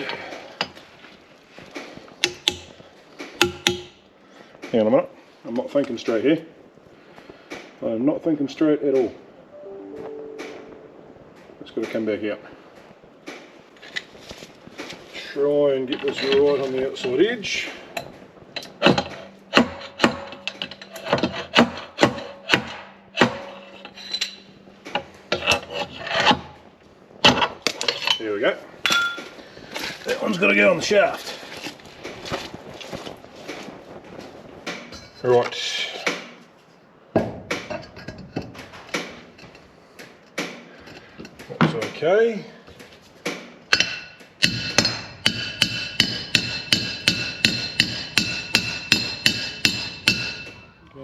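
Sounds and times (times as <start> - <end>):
hammer striking metal: 18.6 - 25.6, 43.7 - 50.7.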